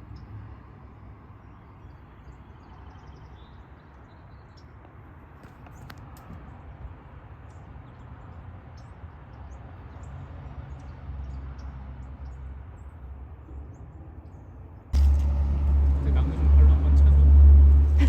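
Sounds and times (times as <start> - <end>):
small birds chirping: 1.3 - 6.8, 7.4 - 14.9
low rumble: 15.0 - 18.0.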